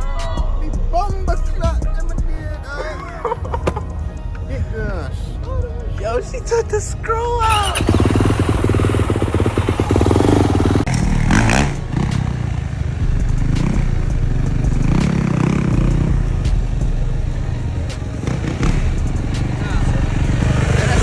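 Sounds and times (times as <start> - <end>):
dirt bike engine revving: 7.4 - 21.0.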